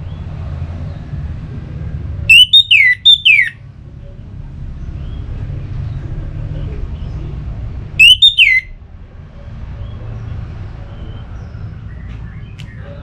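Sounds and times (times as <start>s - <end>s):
thrush harsh call: 2.3s - 3.6s, 8.0s - 8.7s
steady low rumble: 3.6s - 8.0s.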